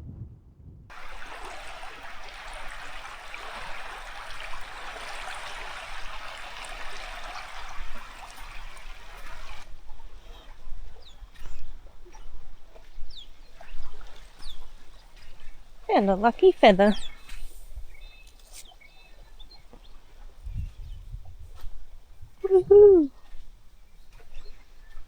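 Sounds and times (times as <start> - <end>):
water flowing: 0.9 - 9.6, 15.9 - 17.0.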